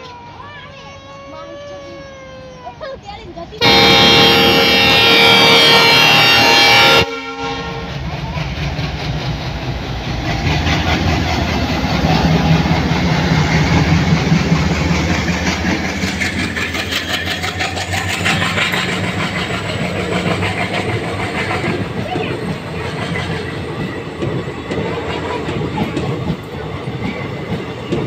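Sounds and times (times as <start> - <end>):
locomotive engine running: 3.5 - 28.0
locomotive horn: 3.6 - 8.0
train wheels clickety-clack: 7.8 - 28.0.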